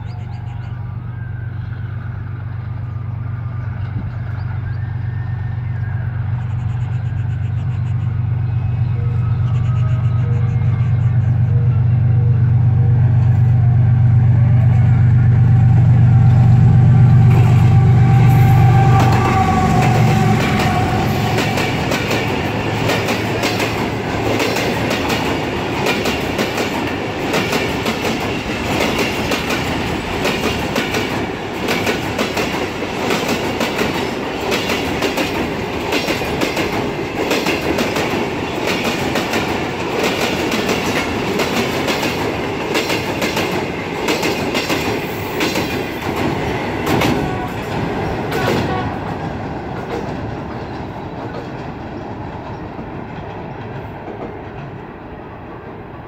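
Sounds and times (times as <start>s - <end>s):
diesel locomotive engine hum: 0.0s - 56.0s
train wheels clattering on rails: 18.7s - 56.0s.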